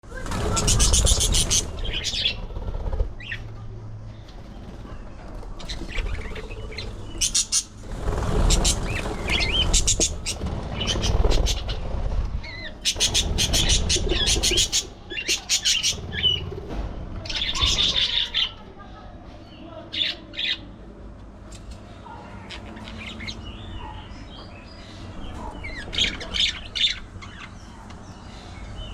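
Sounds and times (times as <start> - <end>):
budgies chirping and chattering: 0.1 - 3.5, 4.3 - 18.9, 19.5 - 20.7, 22.1 - 28.9
wing flapping: 0.1 - 18.6.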